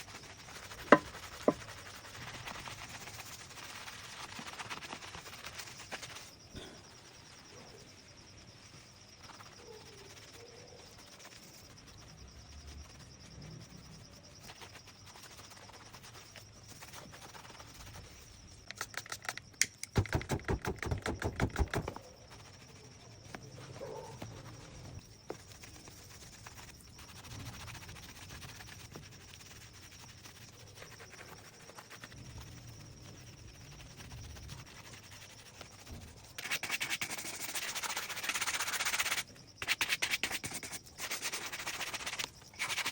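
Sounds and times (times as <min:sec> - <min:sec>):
brush scrubbing leather shoe: 0:00.0 - 0:06.5, 0:14.4 - 0:19.0, 0:21.1 - 0:42.9.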